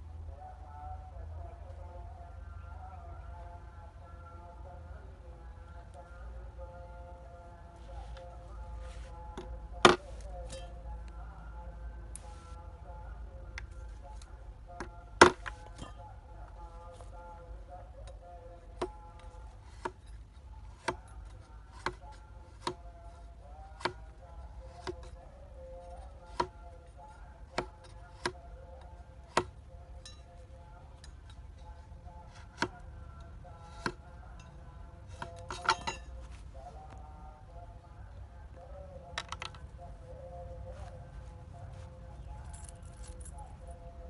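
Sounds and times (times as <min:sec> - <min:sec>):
blade chopping wood: 0:14.8 - 0:15.9.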